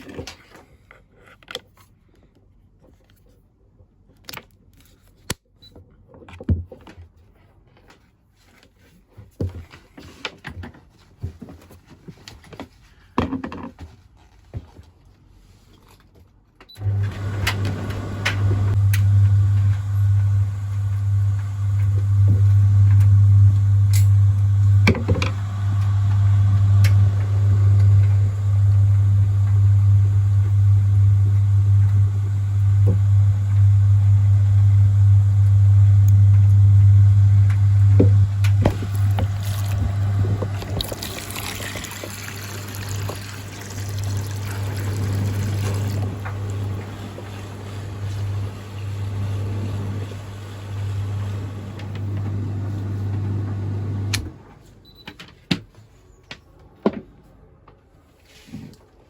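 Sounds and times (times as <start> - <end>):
water pump humming: 16.8 - 54.3
water trickling: 38.8 - 46.6.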